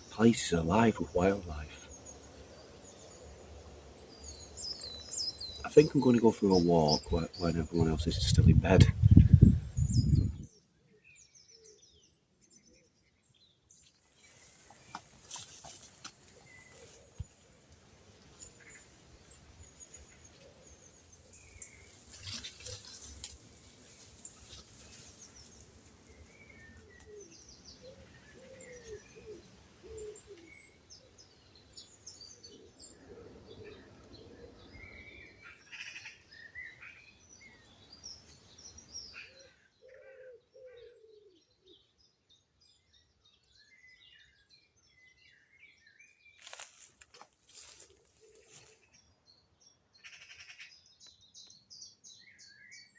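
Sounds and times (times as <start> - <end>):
lower slower bird calls: 0.0 - 52.9
small birds chirping and trilling: 0.0 - 52.9
background hiss: 14.0 - 34.6
brief rustles: 22.0 - 25.2.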